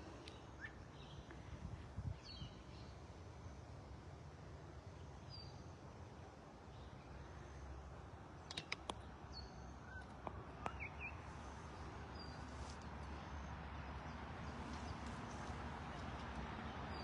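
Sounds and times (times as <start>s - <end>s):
sharp clicks: 8.4s - 9.1s.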